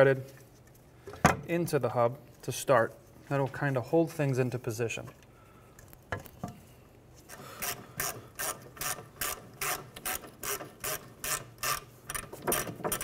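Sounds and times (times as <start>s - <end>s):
hand ratchet clicking: 7.6s - 13.0s.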